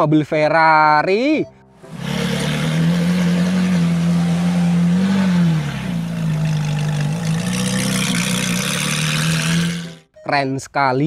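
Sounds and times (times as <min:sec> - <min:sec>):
sports car engine running: 0:01.8 - 0:10.0.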